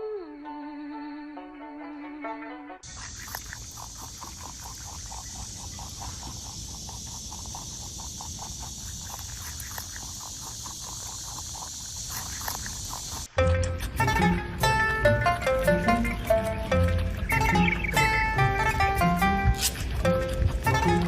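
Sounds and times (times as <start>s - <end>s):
natural ambience hiss: 2.8s - 21.0s
rapid repeated animal calls: 2.9s - 13.3s, 17.2s - 19.2s.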